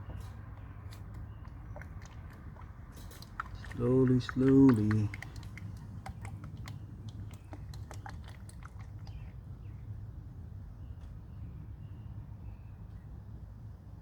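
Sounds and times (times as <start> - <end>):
oil glugging through a funnel: 0.0 - 9.8.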